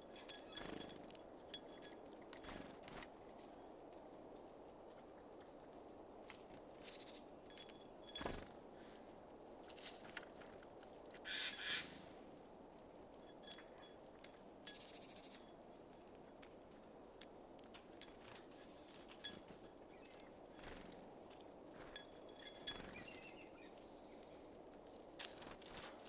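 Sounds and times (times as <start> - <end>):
high bird calls: 11.3 - 12.1.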